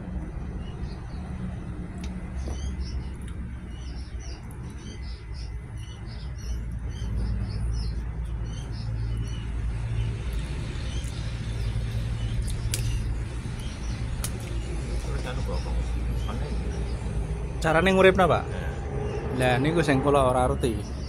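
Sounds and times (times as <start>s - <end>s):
small birds chirping: 0.0s - 21.0s
steady low rumble: 0.0s - 21.0s
sharp clicks: 12.4s - 13.0s, 13.6s - 14.6s.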